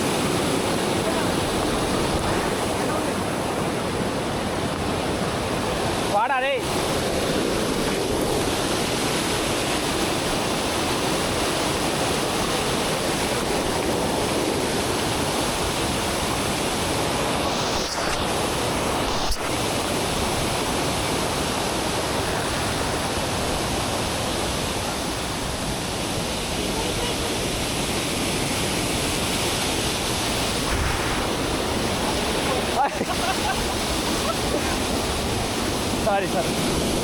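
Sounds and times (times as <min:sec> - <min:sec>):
rushing water roar: 0:00.0 - 0:37.0.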